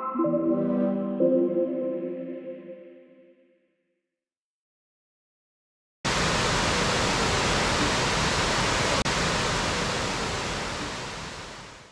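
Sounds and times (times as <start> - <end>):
waterfall rushing: 6.1 - 11.9.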